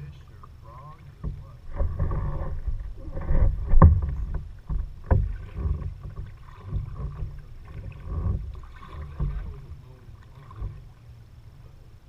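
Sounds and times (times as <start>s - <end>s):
low uneven rumble: 0.0s - 12.0s
paddle strokes splashing water: 0.0s - 12.0s
sharp knocks: 1.2s - 9.7s.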